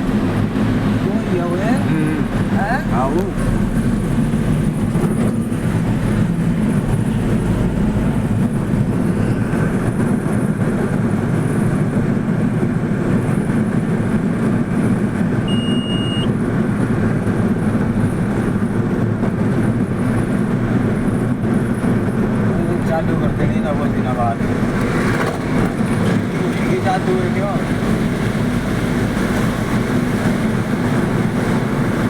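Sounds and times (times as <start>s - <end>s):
vehicle engine and tyre rumble: 0.0s - 32.0s
short high beep: 15.5s - 16.3s.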